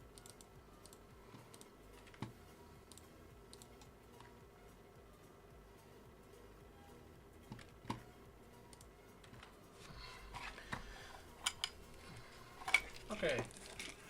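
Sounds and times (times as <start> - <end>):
light rustling handling noise: 9.3 - 14.0.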